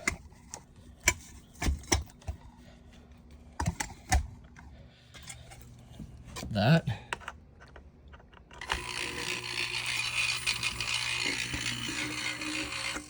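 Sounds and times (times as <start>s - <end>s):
small motor parts clicking: 8.2s - 13.0s.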